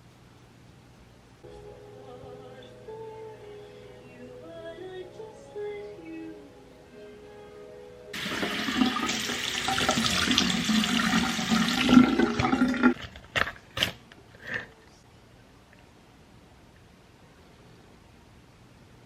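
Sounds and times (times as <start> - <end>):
water running hard: 8.2 - 13.0.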